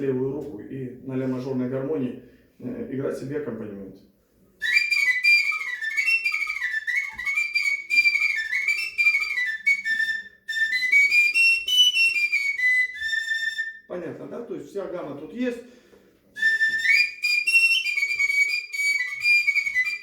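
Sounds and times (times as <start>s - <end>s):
folk whistle flute melody: 4.6s - 13.9s, 16.3s - 20.0s.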